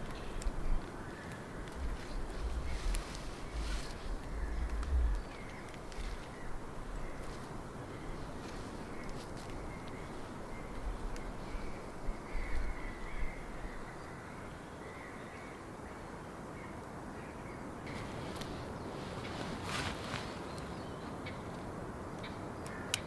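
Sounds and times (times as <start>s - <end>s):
bird calling: 0.0s - 6.6s
outdoor background noise: 0.0s - 23.0s
low rumble: 1.6s - 6.2s.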